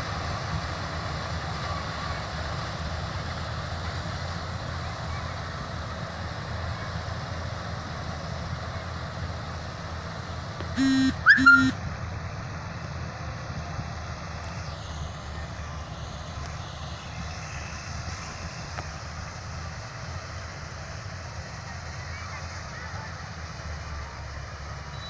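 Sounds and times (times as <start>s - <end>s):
combine harvester rumbling: 0.0s - 25.0s
vehicle horn toots: 10.8s - 11.8s.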